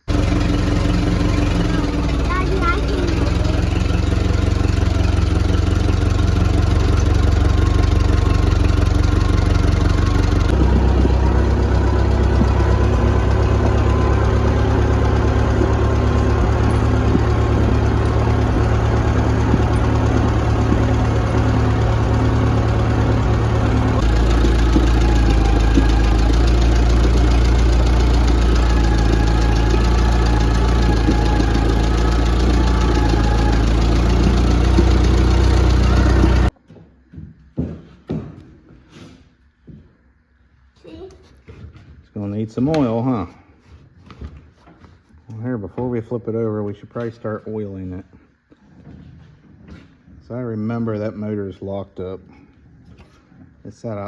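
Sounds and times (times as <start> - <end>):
engine deep even hum: 0.0 - 36.6.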